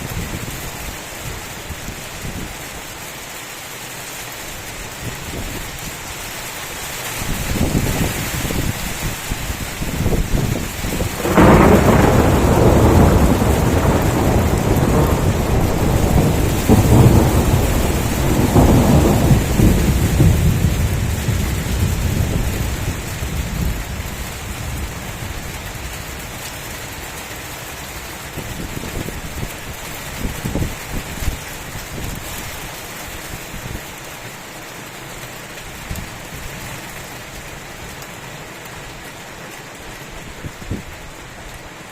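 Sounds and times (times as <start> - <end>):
heavy rain hissing: 0.0 - 41.9
thunder crack and rumble: 7.3 - 32.4.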